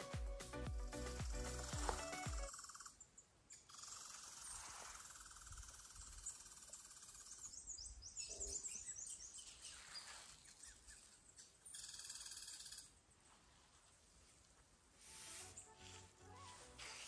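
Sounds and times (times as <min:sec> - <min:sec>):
small birds trilling and chirping: 0:02.5 - 0:13.0.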